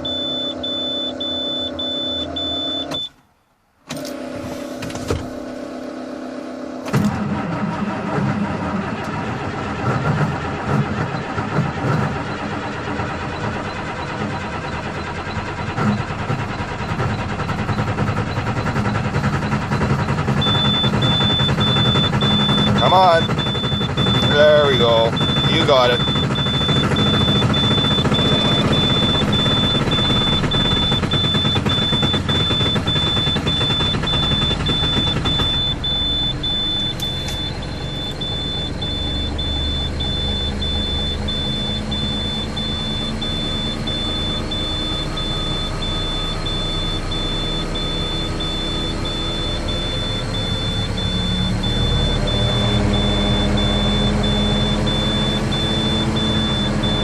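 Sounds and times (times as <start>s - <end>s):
high warning beeps: 0.0s - 3.2s, 19.4s - 57.0s
diesel engine idling: 0.0s - 7.5s, 8.5s - 57.0s.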